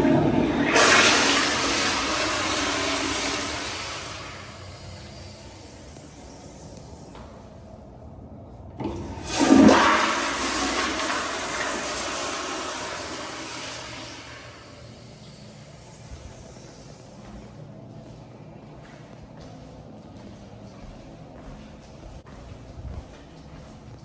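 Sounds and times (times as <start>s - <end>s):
toilet flushing water rush: 0.0s - 7.3s, 8.8s - 17.0s.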